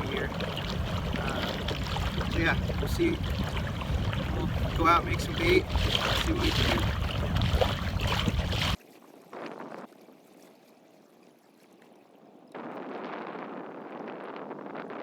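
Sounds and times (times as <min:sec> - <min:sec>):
wind rumbling on microphone: 0:00.0 - 0:10.2, 0:12.5 - 0:15.0
hiss of wind and water: 0:00.0 - 0:10.9.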